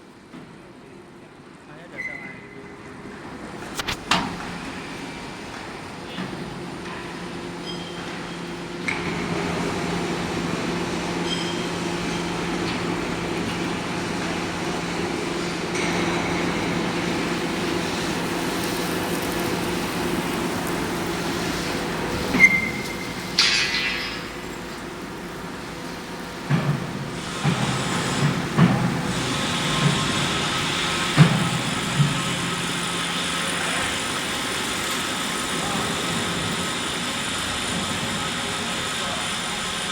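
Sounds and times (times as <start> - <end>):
industrial furnace hum and rushing: 0.0 - 39.9.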